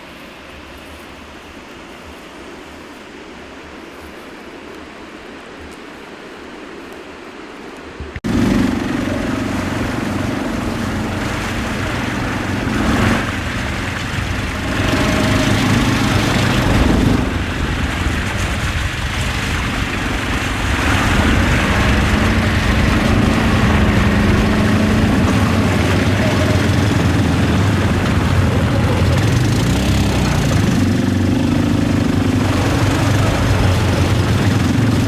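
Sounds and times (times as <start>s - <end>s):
vehicle engine running: 8.2s - 35.0s.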